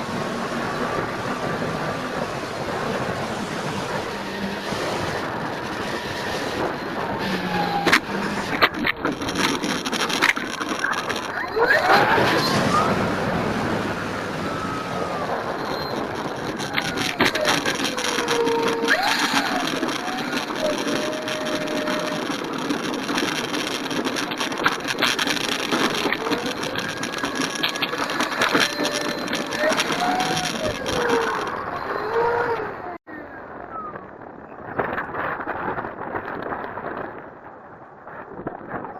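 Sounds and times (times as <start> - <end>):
model plane motor whining: 0.0 - 33.0
wind noise: 0.0 - 38.9
clicks: 14.5 - 33.0.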